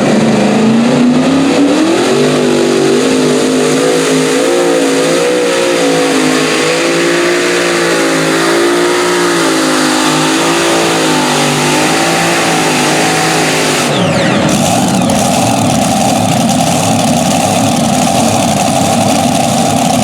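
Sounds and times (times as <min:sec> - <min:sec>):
tractor engine at high revs: 0:00.0 - 0:20.0.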